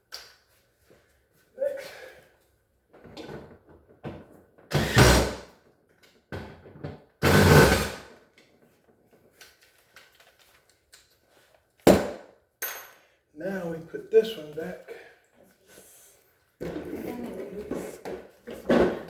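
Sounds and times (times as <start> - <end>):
refrigerator parts knocking and clattering: 2.9 - 5.0, 6.2 - 7.7.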